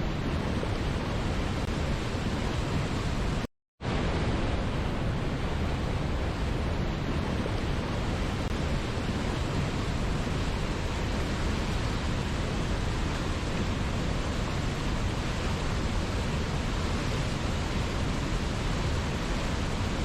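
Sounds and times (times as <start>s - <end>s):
waterfall rushing: 6.4s - 20.0s.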